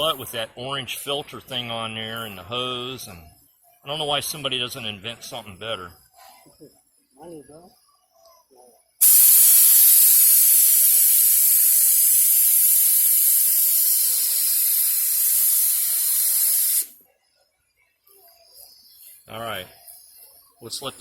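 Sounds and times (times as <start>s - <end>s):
paint spray gun hissing: 9.0s - 17.0s.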